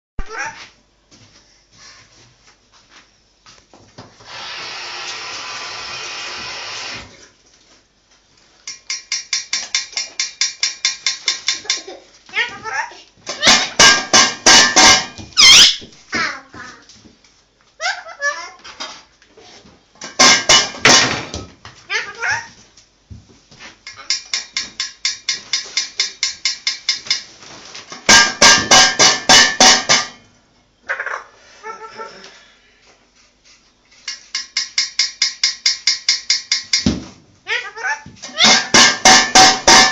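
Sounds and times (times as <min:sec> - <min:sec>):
parrot knocking a dish: 0:13.4 - 0:15.3, 0:20.2 - 0:21.4, 0:28.1 - 0:30.2, 0:38.4 - 0:39.9.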